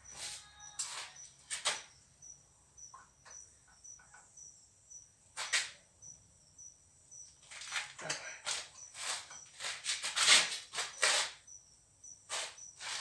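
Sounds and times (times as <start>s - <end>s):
faint high-pitched chirp: 0.0s - 7.4s.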